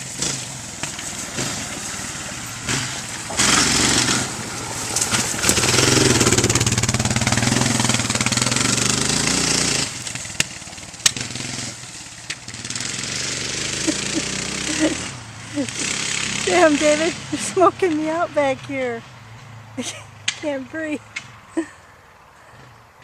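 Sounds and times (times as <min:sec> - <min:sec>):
sharp engine cracks: 0:00.0 - 0:18.2
quad bike engine revving: 0:00.0 - 0:21.8.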